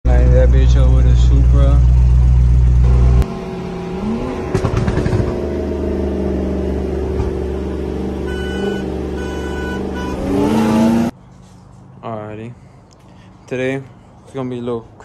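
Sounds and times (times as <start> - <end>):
car engine from inside cabin: 0.2 - 11.1.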